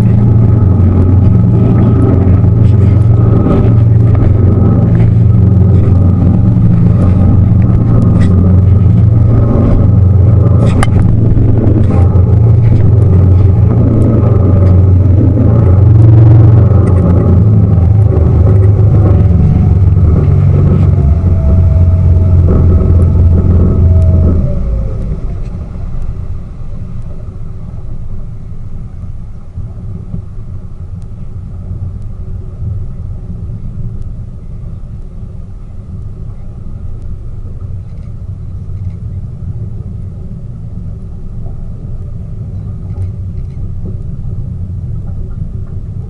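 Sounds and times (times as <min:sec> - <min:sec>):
water rushing: 0:00.0 - 0:30.0
boat engine drone: 0:00.0 - 0:46.0.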